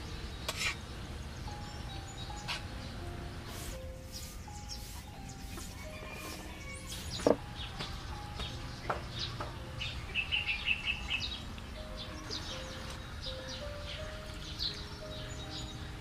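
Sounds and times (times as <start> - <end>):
small birds chirping: 0.0 - 16.0
chicken clucking: 3.5 - 7.9.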